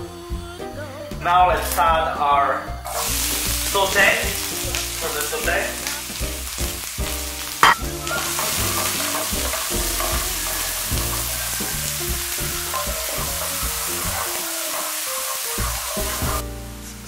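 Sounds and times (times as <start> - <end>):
vegetables sizzling in frying pan: 2.9 - 17.0
sharp knock: 7.6 - 7.8
wooden spoon stirring: 7.6 - 16.4.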